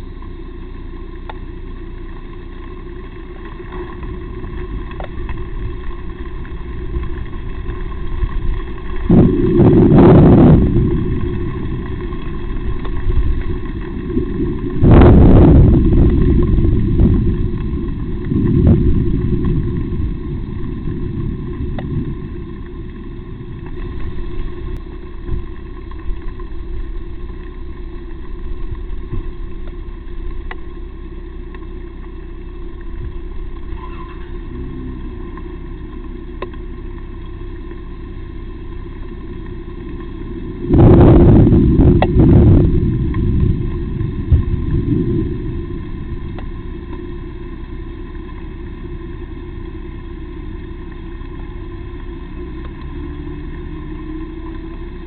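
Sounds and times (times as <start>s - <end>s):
low rumbling noise: 0.0s - 55.0s
faint clicks: 1.2s - 1.4s, 21.4s - 30.8s, 32.7s - 37.8s.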